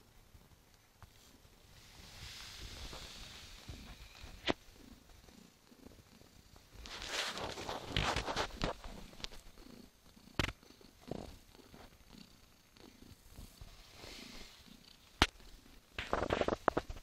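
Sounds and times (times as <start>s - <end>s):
cat purring: 0.0s - 17.0s
rustling: 0.9s - 5.5s, 6.5s - 9.8s, 12.8s - 17.0s.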